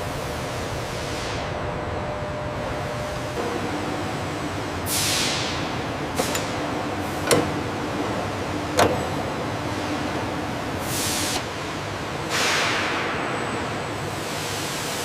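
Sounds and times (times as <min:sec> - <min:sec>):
factory background hum: 0:00.0 - 0:15.0.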